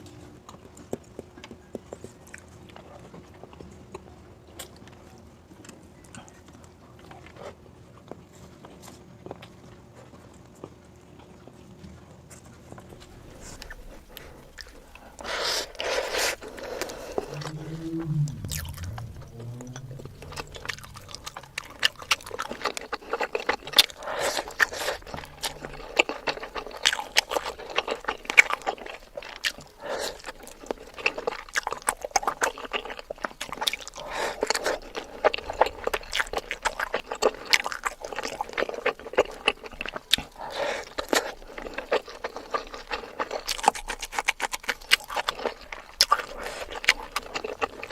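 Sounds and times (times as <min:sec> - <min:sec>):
chewing and crunching food: 0:00.0 - 0:47.9
mouth sounds: 0:13.5 - 0:27.5.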